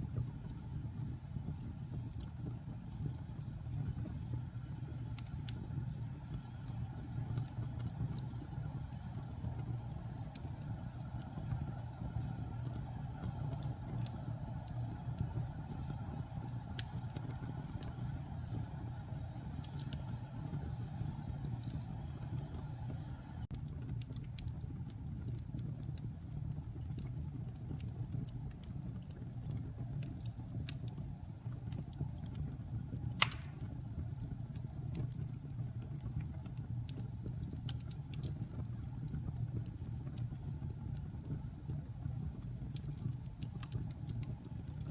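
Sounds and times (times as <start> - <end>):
fire roaring in fireplace: 0.0 - 44.9
wood fire crackling: 0.0 - 44.9
loud pop from fire: 33.2 - 33.8.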